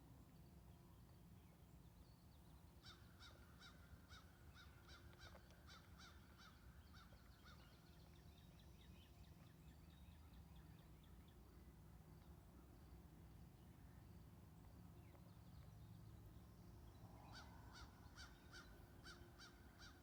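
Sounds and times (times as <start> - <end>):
faint bird calls: 17.0 - 20.0.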